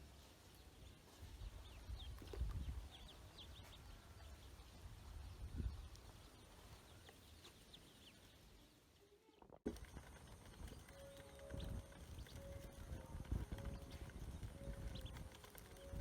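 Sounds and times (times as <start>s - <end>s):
ducklings peeping: 10.1s - 16.0s.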